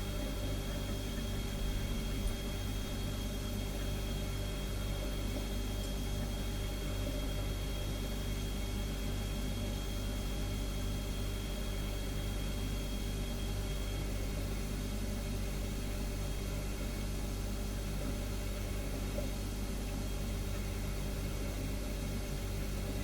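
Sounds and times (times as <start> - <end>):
refrigerator compressor hum: 0.0 - 23.0.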